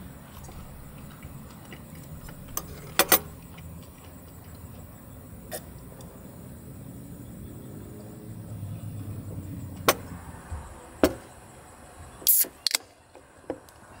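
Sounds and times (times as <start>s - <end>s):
car engine rumbling: 0.0s - 12.2s
sharp clicks: 12.2s - 13.0s.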